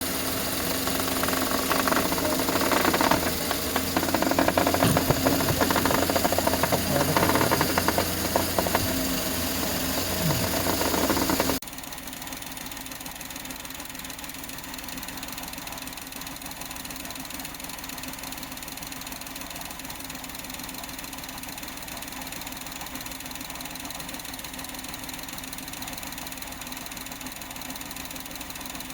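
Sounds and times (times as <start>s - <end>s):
car suspension knocking and clattering: 0.0s - 11.6s
car engine running: 0.0s - 21.0s.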